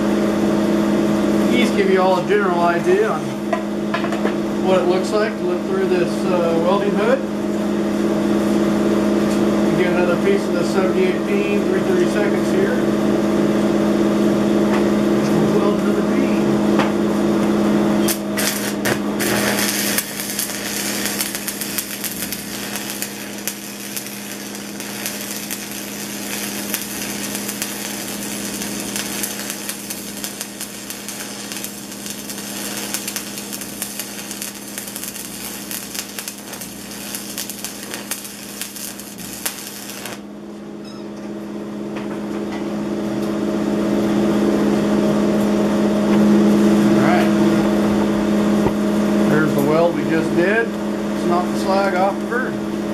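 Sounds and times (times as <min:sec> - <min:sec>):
steady low hum: 0:00.0 - 0:52.9
welding arc crackling: 0:01.5 - 0:03.1, 0:17.8 - 0:40.4.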